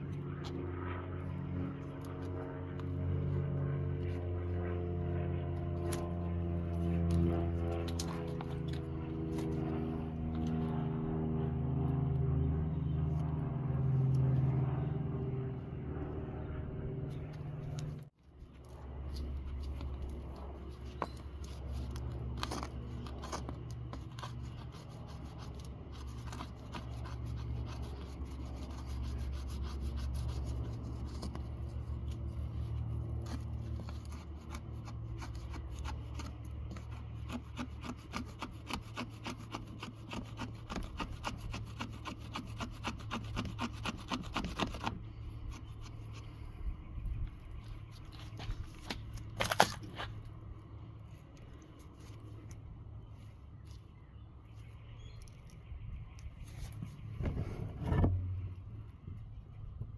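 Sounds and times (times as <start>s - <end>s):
knife blade scraping material: 5.6s - 10.8s, 18.6s - 46.3s, 47.6s - 50.3s.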